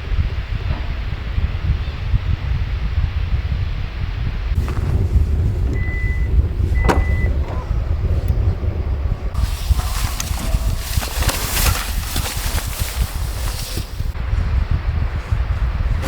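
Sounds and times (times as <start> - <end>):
wind buffeting microphone: 0.0 - 16.0
loud rushing hiss: 9.3 - 14.4.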